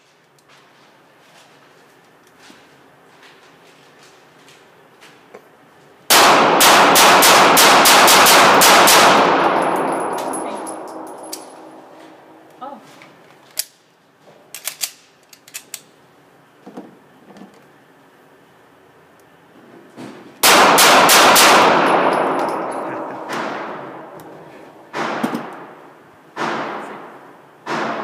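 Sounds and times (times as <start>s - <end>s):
pistol shots echoing indoors: 6.1s - 12.5s, 20.4s - 28.0s
gun handling clicks: 10.1s - 11.7s, 13.5s - 13.8s, 14.5s - 15.9s.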